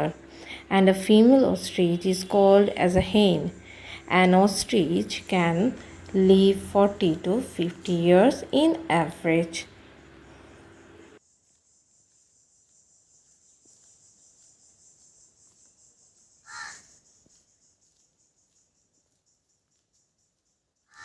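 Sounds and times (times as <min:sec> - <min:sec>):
low hum: 0:00.0 - 0:11.2
crickets chirring: 0:00.0 - 0:21.0.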